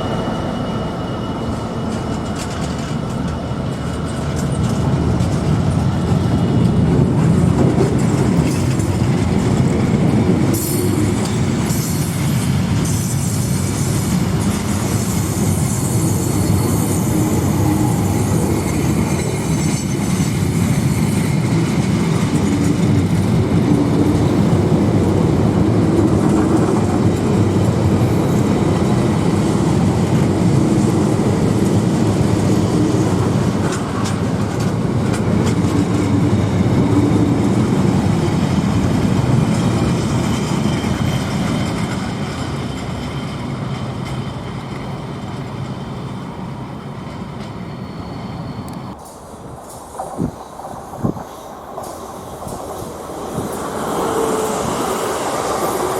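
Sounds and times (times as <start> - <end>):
train rumbling on rails: 0.0 - 55.9
high-pitched squeal: 10.6 - 21.4.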